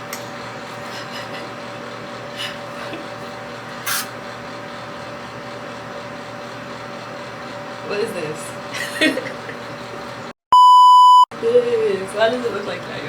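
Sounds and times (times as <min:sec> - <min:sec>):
fan humming: 0:00.0 - 0:13.0
spray bottle spritzing: 0:03.8 - 0:04.1.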